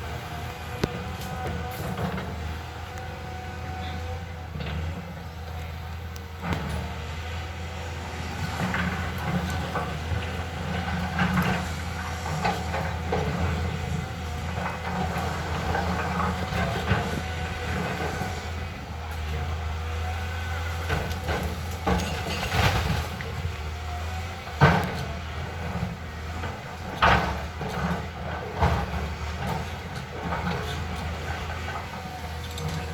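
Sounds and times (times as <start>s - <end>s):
excavator diesel engine running: 0.0s - 32.9s
metallic clanks and knocks: 20.9s - 23.2s.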